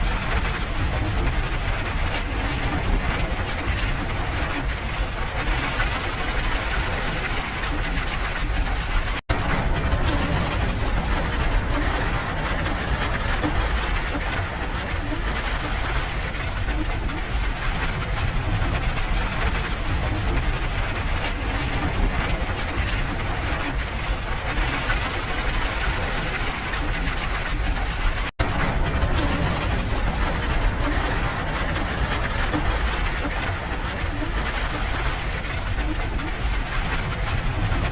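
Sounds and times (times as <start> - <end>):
deep low rumble: 8.5 - 23.8, 25.4 - 37.9
steady rain hiss: 28.4 - 37.9.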